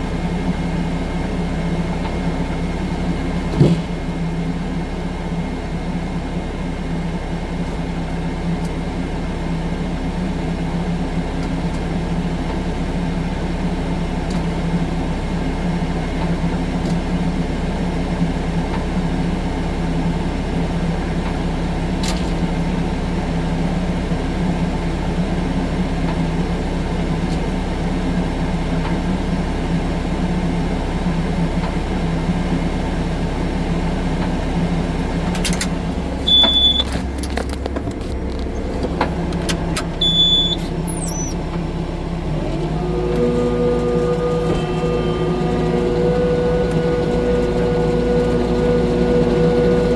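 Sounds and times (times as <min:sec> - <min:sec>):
diesel engine running steadily: 0:00.0 - 0:49.9.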